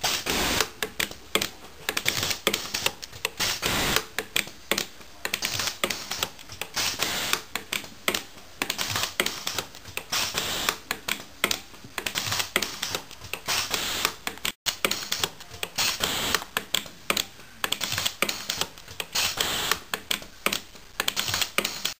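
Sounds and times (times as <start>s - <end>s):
steady welding hiss: 0.0s - 0.7s, 2.2s - 4.0s, 5.4s - 7.5s, 8.9s - 10.8s, 12.6s - 14.2s, 15.8s - 16.5s, 18.3s - 19.9s
spot welder snapping: 0.0s - 21.9s.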